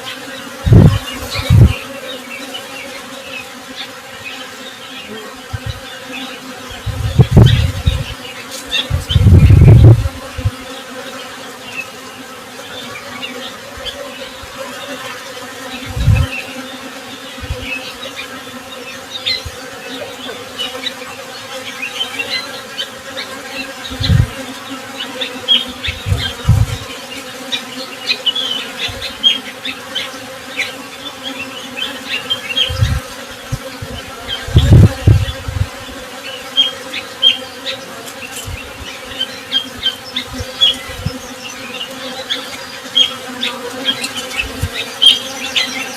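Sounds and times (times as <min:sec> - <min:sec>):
bees buzzing: 0:00.0 - 0:45.9
low thumps: 0:00.7 - 0:01.8, 0:06.8 - 0:08.2, 0:08.8 - 0:10.6, 0:15.9 - 0:16.3, 0:17.4 - 0:17.7, 0:25.9 - 0:26.9, 0:32.7 - 0:35.8.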